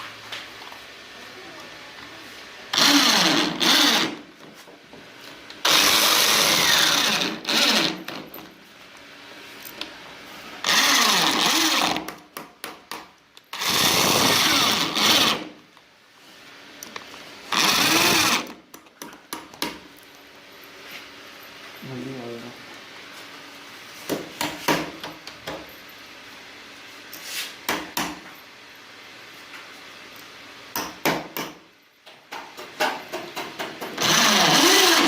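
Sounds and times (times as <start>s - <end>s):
power tool cutting wood: 2.7s - 4.2s, 5.6s - 8.3s, 10.6s - 12.2s, 13.5s - 15.6s, 17.5s - 18.6s, 34.0s - 35.0s.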